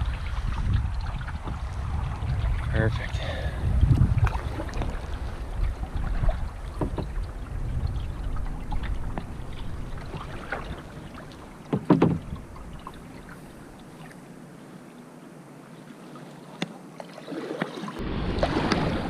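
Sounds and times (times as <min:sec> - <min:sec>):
wind rumbling on microphone: 0:00.0 - 0:14.2, 0:18.0 - 0:19.0
water splashing around a kayak: 0:00.0 - 0:19.0.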